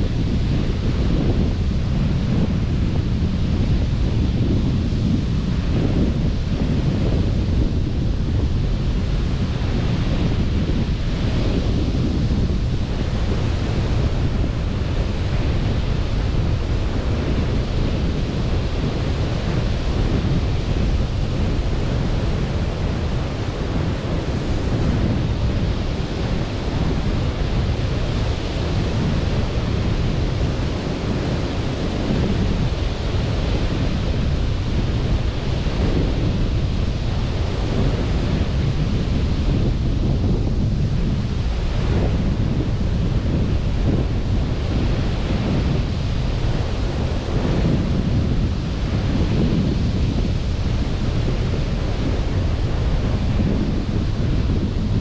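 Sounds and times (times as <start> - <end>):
surf washing onto beach: 0.0 - 55.0
wind rumbling on microphone: 0.0 - 55.0.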